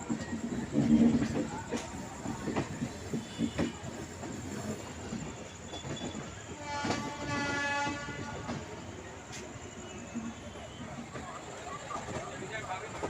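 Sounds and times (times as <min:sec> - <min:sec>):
train wheels knocking on rail joints: 0:00.0 - 0:09.6
train running noise: 0:00.0 - 0:13.0
train horn: 0:03.1 - 0:04.0, 0:05.6 - 0:08.9.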